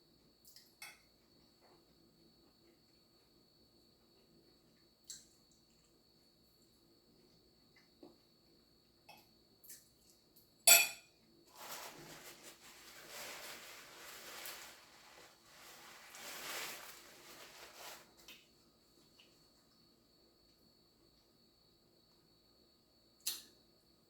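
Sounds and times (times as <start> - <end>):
sharp clink of dishes: 10.6 - 11.2
scraping and rustling: 11.5 - 18.4.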